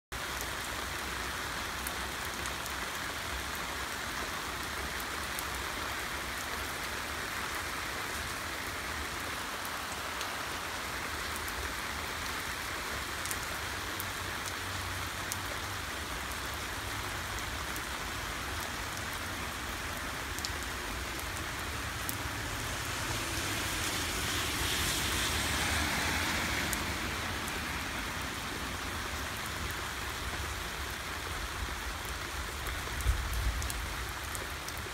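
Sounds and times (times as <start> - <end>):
raindrops ticking: 17.2 - 22.4
heavy rain hissing: 18.7 - 31.4.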